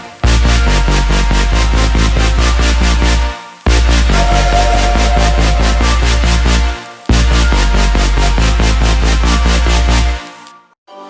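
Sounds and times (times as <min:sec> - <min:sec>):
electronic dance music: 0:04.1 - 0:07.0.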